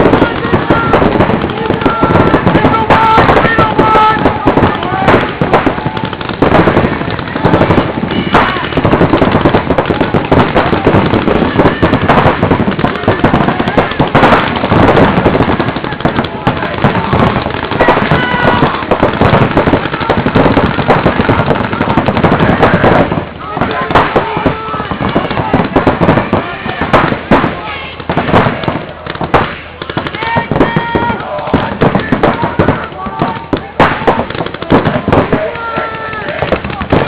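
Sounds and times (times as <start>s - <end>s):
voices shouting: 0.0s - 37.0s
paintball markers firing: 28.3s - 37.0s.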